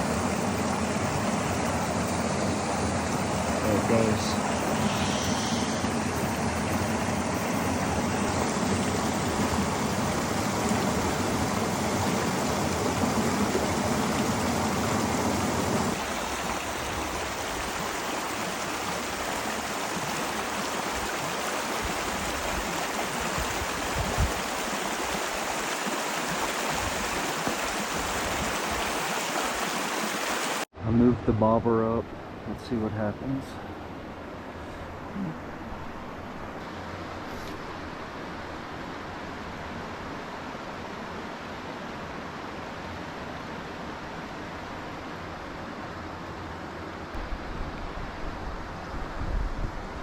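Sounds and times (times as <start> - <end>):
river water running over rocks: 0.0 - 30.7.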